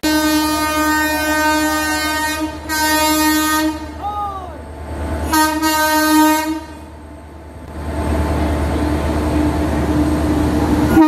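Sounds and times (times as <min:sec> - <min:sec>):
train horn: 0:00.0 - 0:04.0, 0:05.2 - 0:06.9
train rumbling along tracks: 0:00.0 - 0:11.0.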